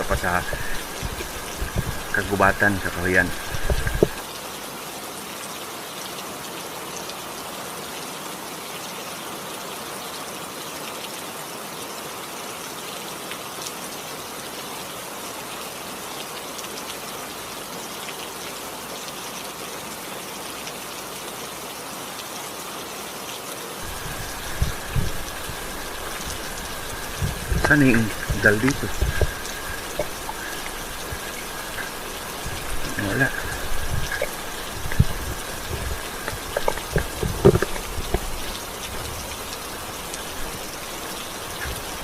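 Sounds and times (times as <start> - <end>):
low thumps and rumbles: 0.0 - 4.2, 23.8 - 39.4
steady rain falling: 0.0 - 42.0.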